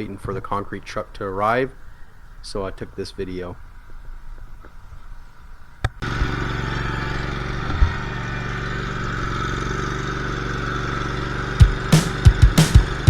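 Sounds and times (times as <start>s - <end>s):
engine running: 5.9s - 13.0s.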